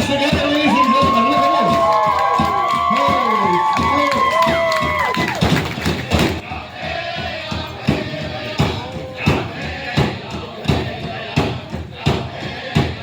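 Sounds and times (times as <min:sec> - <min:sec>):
powwow drum beating: 0:00.0 - 0:13.0
people singing: 0:04.4 - 0:13.0.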